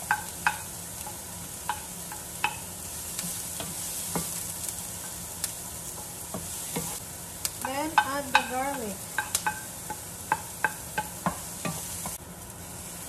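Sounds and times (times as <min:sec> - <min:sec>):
wooden spatula knocking on pan: 0:00.0 - 0:02.6, 0:07.7 - 0:12.2
onion sizzling in hot oil: 0:00.0 - 0:13.0.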